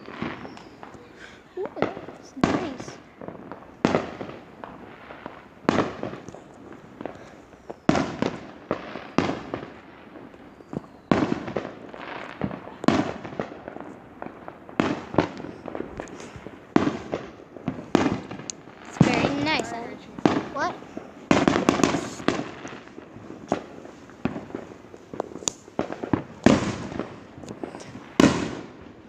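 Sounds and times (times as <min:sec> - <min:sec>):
fireworks bangs with echo: 0:00.0 - 0:29.0.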